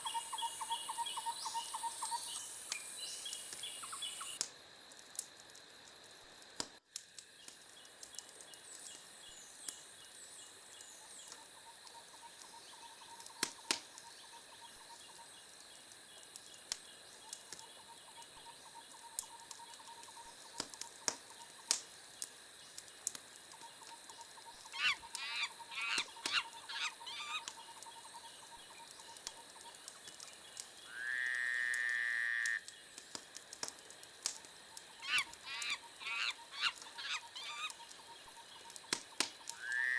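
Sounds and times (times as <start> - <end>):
faint chirping insects: 0.0 - 39.9
wood fire crackling and popping: 2.1 - 30.8, 31.7 - 39.8
animal calls: 24.6 - 27.8, 34.9 - 38.4.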